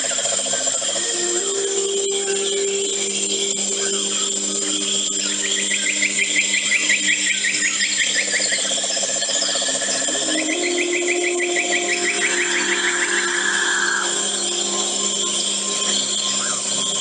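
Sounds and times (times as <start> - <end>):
lower animal trill: 0.4 - 17.0
low hum of tones: 0.9 - 17.0
high animal trill: 10.0 - 17.0.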